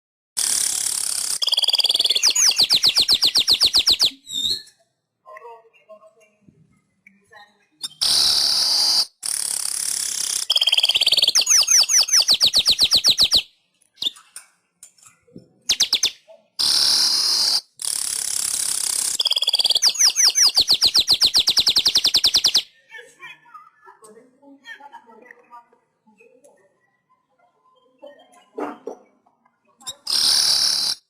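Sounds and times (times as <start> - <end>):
weaver bird song: 0.4 - 4.8, 10.1 - 14.3, 15.1 - 17.6, 18.6 - 22.9, 29.7 - 31.0.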